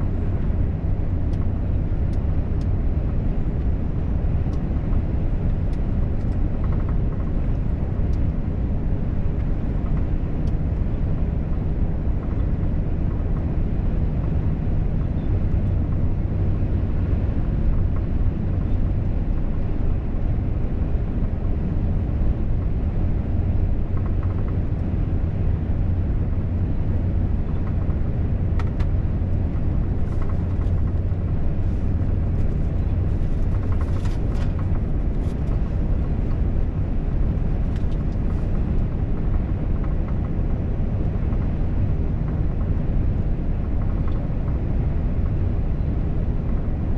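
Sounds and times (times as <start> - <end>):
truck driving on highway: 0.0 - 46.9.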